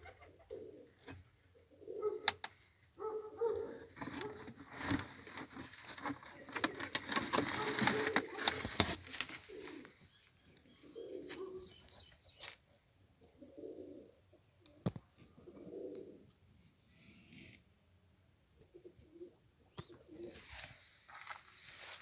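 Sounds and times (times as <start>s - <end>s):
pigeons cooing: 0.0s - 5.6s, 6.2s - 12.5s, 13.2s - 16.3s, 18.6s - 20.7s.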